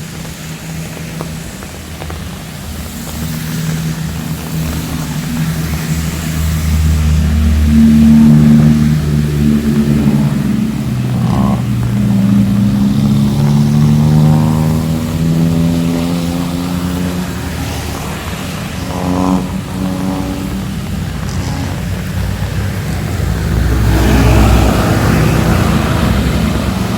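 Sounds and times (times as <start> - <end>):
vehicle engine accelerating: 0.0 - 26.9.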